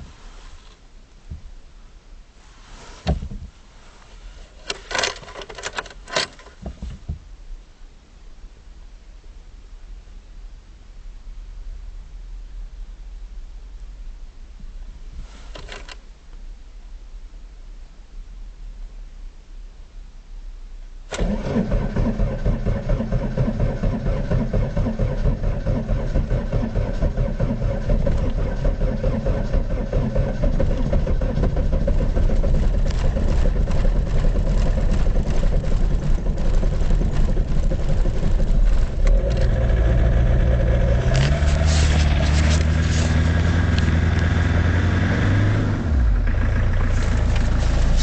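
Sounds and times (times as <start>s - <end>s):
diesel engine starting and idling: 21.1s - 48.0s.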